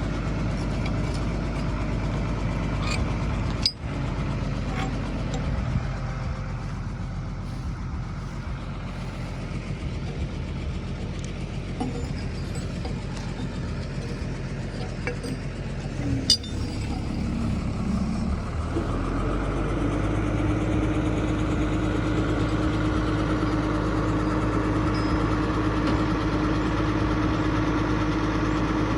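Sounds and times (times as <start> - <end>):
heavy truck engine running: 0.0 - 28.9
sharp metallic clink: 16.0 - 17.6.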